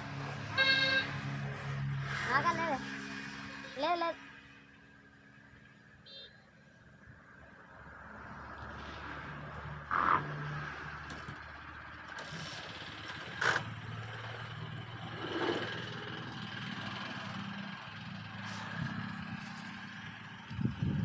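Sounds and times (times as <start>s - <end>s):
engine humming: 9.8s - 21.0s.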